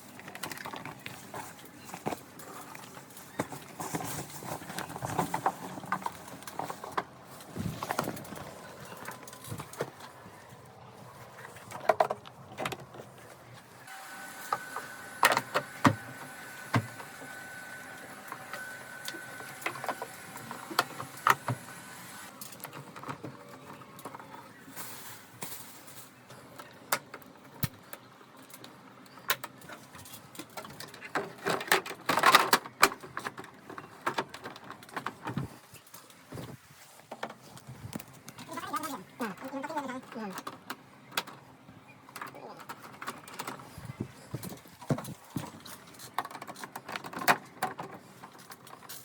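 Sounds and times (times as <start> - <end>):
small electric motor whining: 13.8 - 22.3
clatter of parts and tools: 28.6 - 36.0.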